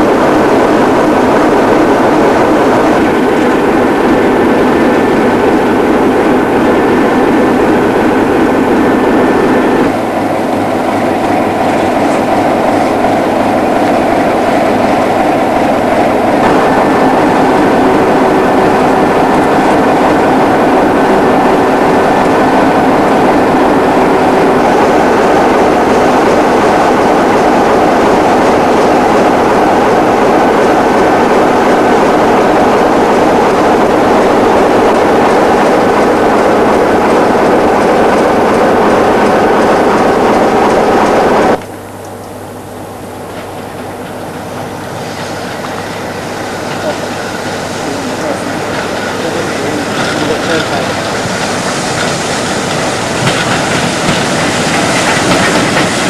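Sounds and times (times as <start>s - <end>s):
train rumbling and rattling: 0.0s - 56.0s.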